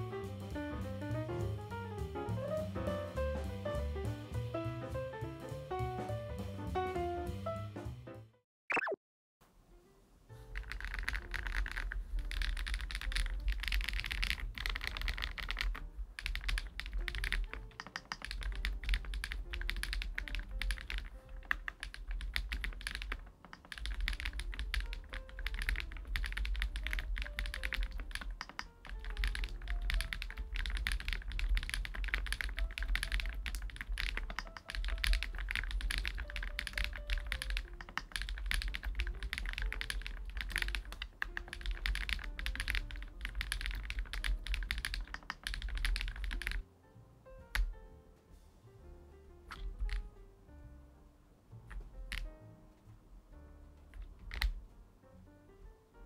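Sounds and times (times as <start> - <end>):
soft background music: 0.0 - 8.4, 9.4 - 56.0
mechanical keyboard typing: 10.5 - 46.6, 47.5 - 47.8, 49.5 - 50.1, 51.7 - 52.3, 53.9 - 54.6.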